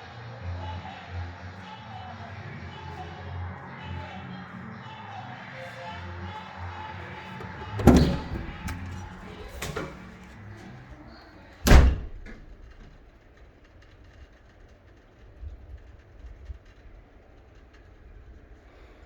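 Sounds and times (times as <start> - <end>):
sudden thuds: 7.4 - 10.2, 11.6 - 13.0.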